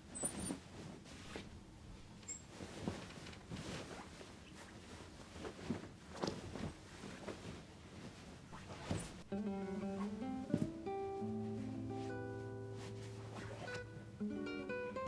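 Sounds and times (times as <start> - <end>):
soft rustling: 0.0 - 15.0
acoustic guitar music: 9.2 - 15.0.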